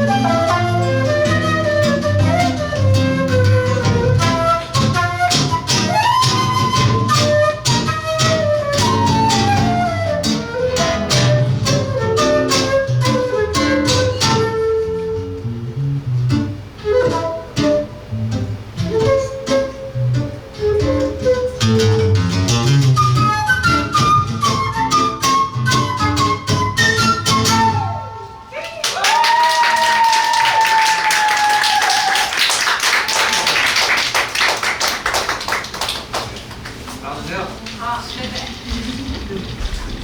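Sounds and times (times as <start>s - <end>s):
flute melody: 0.0s - 28.5s.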